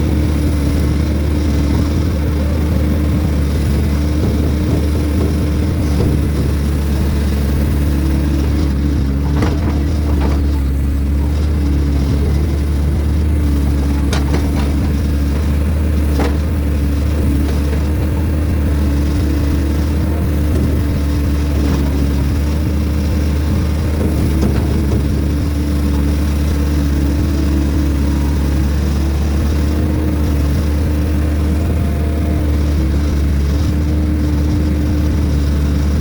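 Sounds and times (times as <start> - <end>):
heavy equipment engine droning: 0.0 - 36.0
short knocks: 8.9 - 11.0, 13.4 - 19.1.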